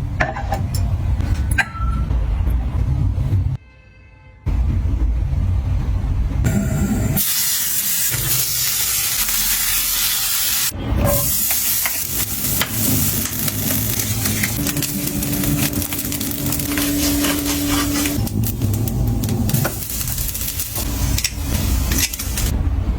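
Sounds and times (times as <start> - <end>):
food sizzling in a pan: 7.2 - 22.5.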